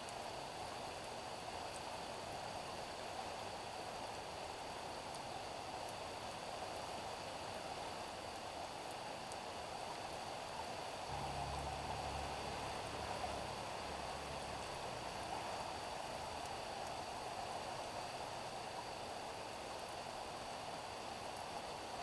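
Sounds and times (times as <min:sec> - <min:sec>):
low rumble: 0:11.1 - 0:15.5.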